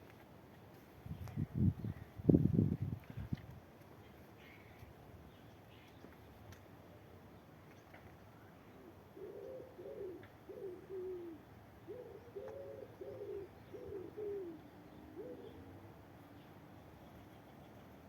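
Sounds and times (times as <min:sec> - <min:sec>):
pigeon cooing: 0:08.8 - 0:15.8.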